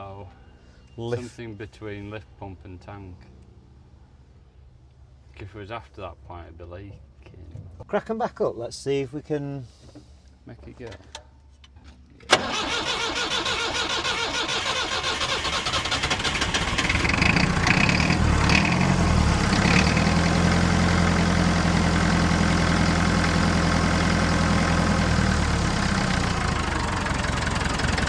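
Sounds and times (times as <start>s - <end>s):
diesel engine cranking and starting: 12.3s - 28.0s.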